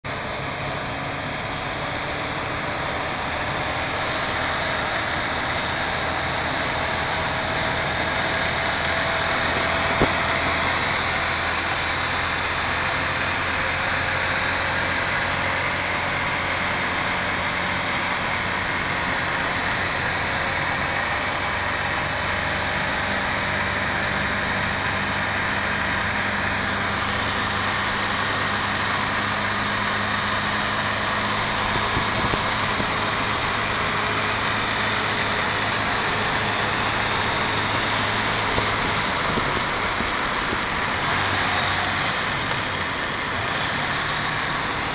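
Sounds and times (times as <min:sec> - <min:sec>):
motorcycle engine running: 0:00.1 - 0:44.9.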